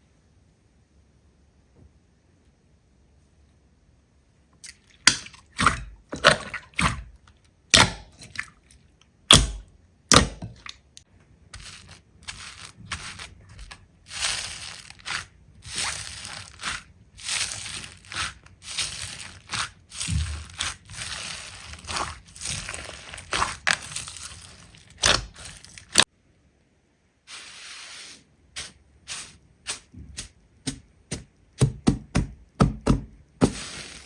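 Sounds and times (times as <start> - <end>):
slime squishing: 4.6 - 26.1, 28.6 - 34.0.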